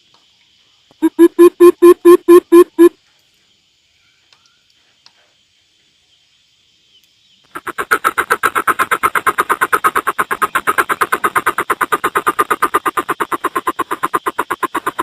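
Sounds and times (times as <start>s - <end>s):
bird pulsing call series: 1.0s - 3.0s, 7.5s - 15.0s.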